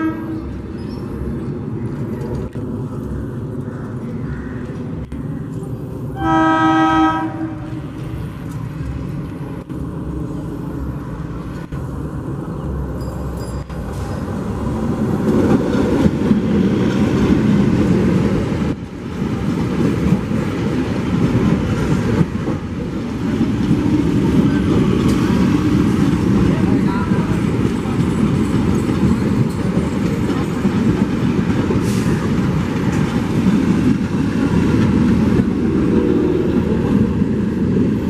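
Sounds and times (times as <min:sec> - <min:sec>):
train horn: 0:00.0 - 0:00.4, 0:06.2 - 0:07.8
train running rumble: 0:00.0 - 0:38.0.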